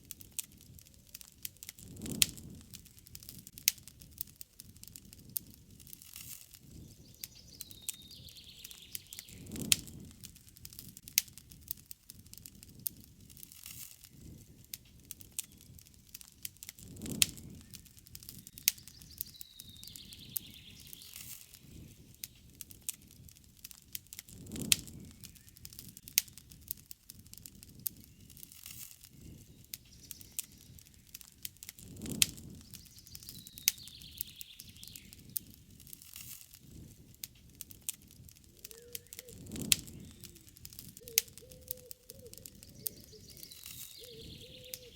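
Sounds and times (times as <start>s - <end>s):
campfire crackling and popping: 0.0s - 44.9s
bird chirping: 6.7s - 9.6s, 17.7s - 22.5s, 29.3s - 31.2s, 32.6s - 35.4s, 38.5s - 44.9s.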